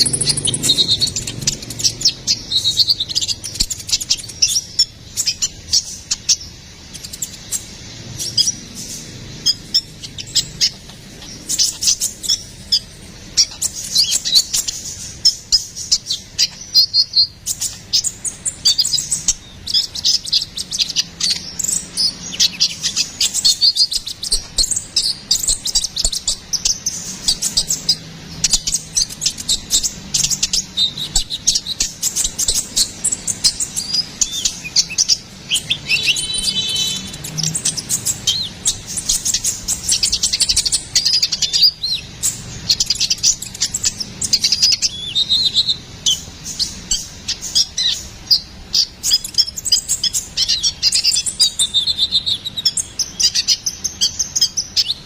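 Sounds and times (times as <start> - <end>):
sunbird chirping and trilling: 0.0 - 55.0.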